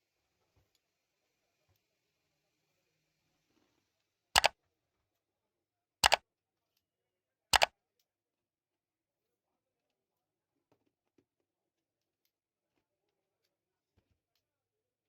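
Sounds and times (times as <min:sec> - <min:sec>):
sharp double clicks: 0:04.4 - 0:04.6, 0:06.0 - 0:06.2.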